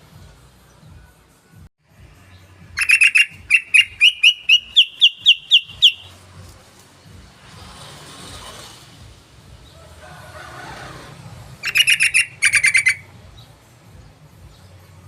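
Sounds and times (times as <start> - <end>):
bulbul rattling call: 2.8 - 6.2, 11.6 - 13.1.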